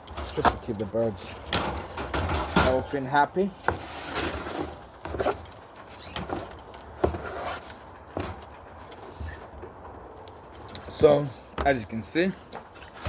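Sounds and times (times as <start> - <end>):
rubbing and scraping: 3.6 - 9.4.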